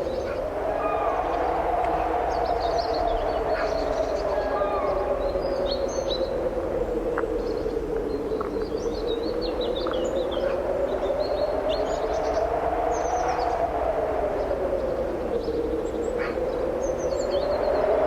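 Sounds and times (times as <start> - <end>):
strong wind moaning: 0.0 - 18.0
small birds chirping: 7.3 - 13.6.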